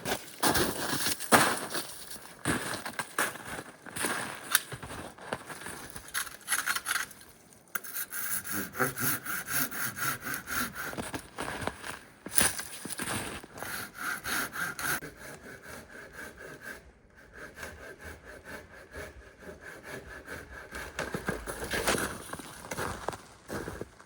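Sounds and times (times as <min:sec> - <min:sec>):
hand saw cutting wood: 0:07.8 - 0:22.4.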